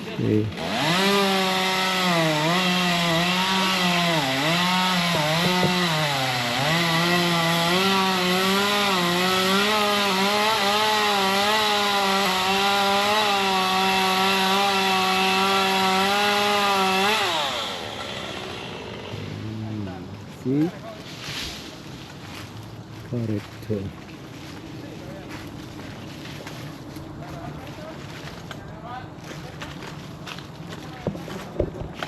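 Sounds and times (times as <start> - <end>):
chainsaw cutting wood: 0.2 - 19.5.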